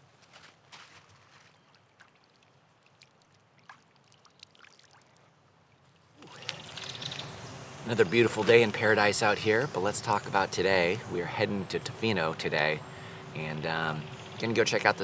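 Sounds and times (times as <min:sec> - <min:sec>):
faint trickling water: 0:01.6 - 0:10.8.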